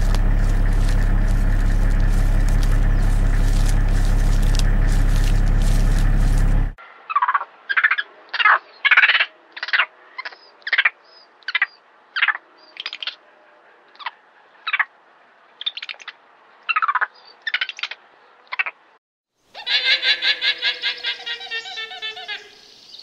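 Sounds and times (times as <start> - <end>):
high-pitched animal calls: 19.6 - 22.6.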